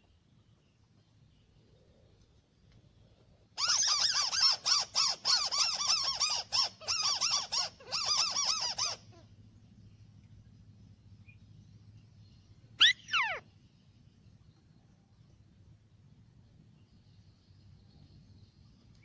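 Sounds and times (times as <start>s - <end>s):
bird chattering call: 12.8s - 13.4s.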